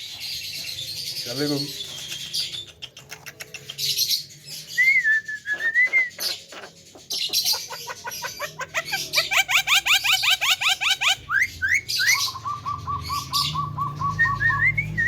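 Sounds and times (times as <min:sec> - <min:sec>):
bird chirping: 0:00.0 - 0:15.0
myna calling: 0:06.3 - 0:11.4.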